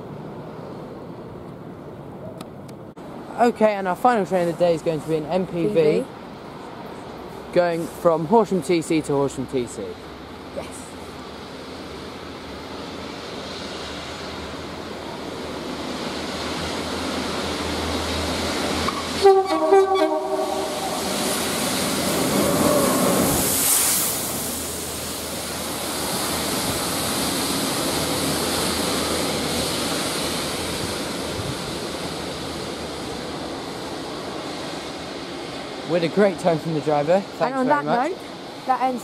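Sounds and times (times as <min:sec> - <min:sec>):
train wheels rushing past: 0:11.3 - 0:39.0
short horn blasts: 0:19.2 - 0:21.1.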